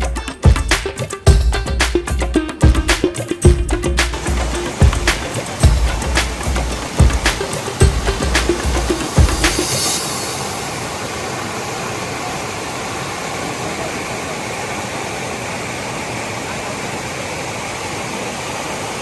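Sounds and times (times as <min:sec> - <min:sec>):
waterfall rushing: 0:04.1 - 0:19.0.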